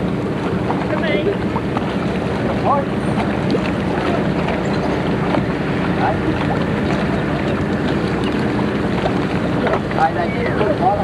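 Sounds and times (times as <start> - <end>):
faint voices chatting: 9.5 - 11.0.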